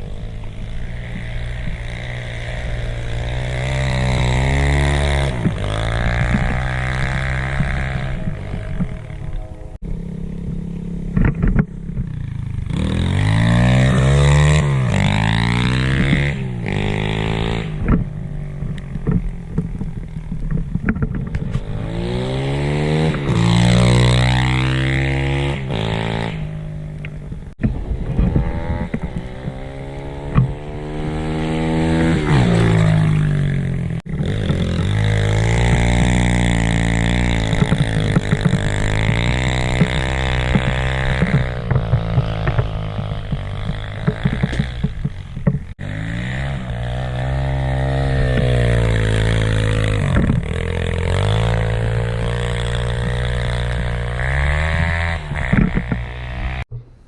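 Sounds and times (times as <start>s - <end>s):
pit bike engine revving: 0.0s - 56.7s.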